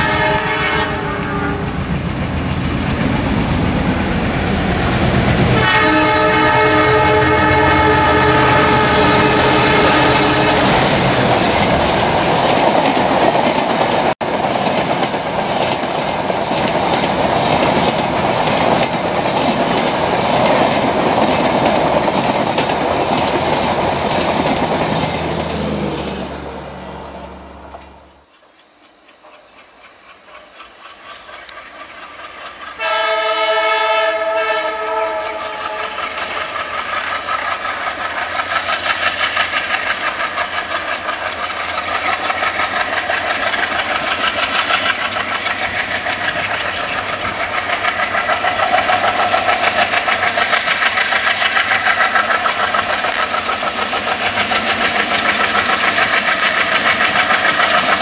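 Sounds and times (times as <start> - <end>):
locomotive horn: 0.0 - 1.7, 5.4 - 11.0, 32.8 - 36.4
train wheels clattering over rails: 0.0 - 26.4, 35.0 - 58.0
diesel locomotive chugging: 0.0 - 58.0.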